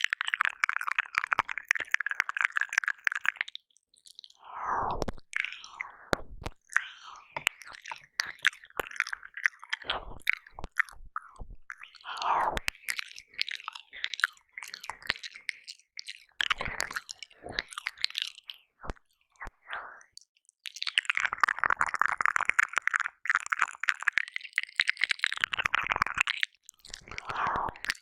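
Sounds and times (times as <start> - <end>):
wet mouth sounds: 0.0 - 20.1, 20.7 - 28.0
breathy sucking: 4.3 - 8.4, 9.8 - 12.8, 27.2 - 27.9.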